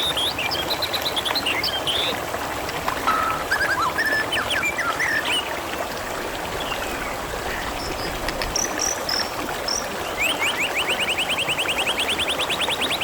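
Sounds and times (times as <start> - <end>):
water flowing over stones: 0.0 - 13.0
birds chirping: 3.0 - 13.0.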